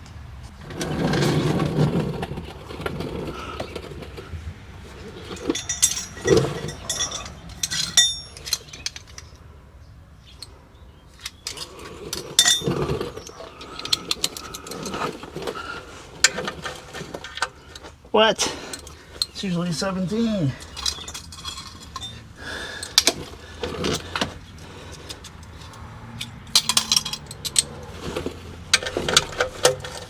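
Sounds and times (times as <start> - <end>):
metal tools clinking: 4.8 - 9.4, 11.1 - 30.0.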